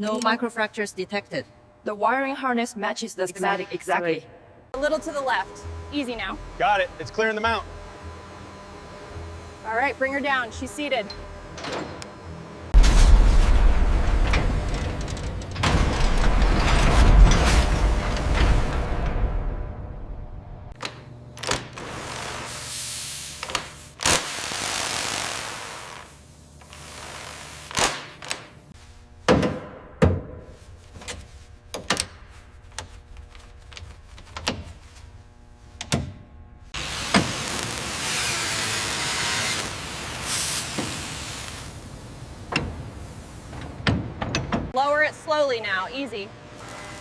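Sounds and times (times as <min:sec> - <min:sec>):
hiss: 0:22.0 - 0:28.1, 0:36.8 - 0:43.6.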